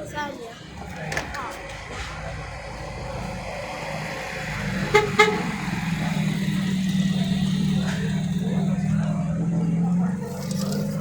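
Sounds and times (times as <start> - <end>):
vehicle engine running: 0.5 - 11.0
car horn double toot: 4.9 - 5.8.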